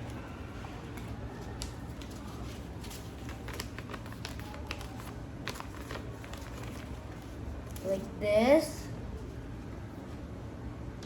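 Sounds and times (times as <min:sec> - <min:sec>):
paper crackles: 0:00.0 - 0:08.1
paper folding and rustling: 0:00.0 - 0:08.1.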